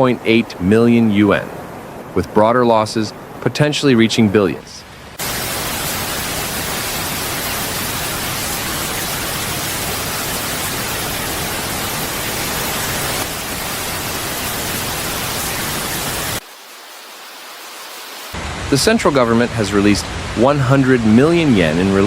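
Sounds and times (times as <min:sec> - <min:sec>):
loud hissing noise: 0:05.2 - 0:22.0.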